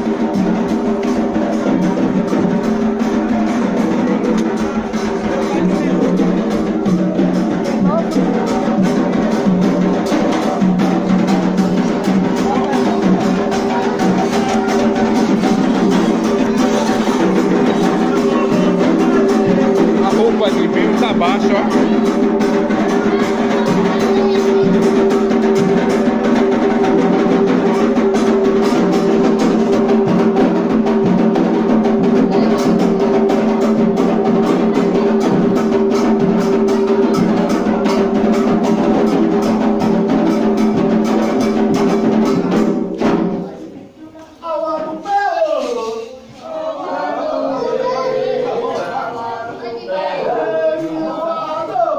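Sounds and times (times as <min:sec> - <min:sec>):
group of voices singing: 0:00.0 - 0:42.6, 0:43.4 - 0:51.9
drums keeping a steady beat: 0:00.0 - 0:51.9.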